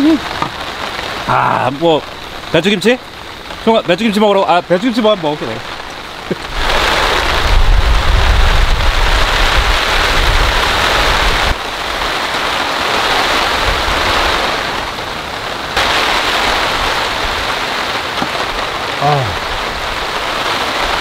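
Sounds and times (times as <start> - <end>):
heavy rain falling: 0.0 - 21.0
wind buffeting microphone: 6.4 - 11.6.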